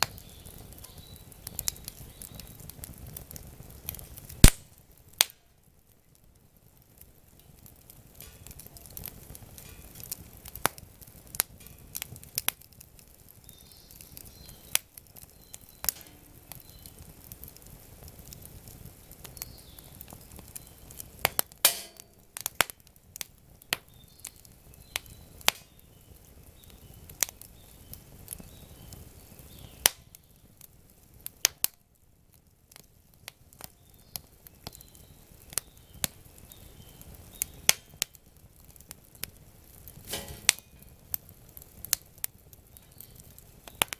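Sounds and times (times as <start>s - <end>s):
campfire crackling and popping: 0.0s - 43.9s.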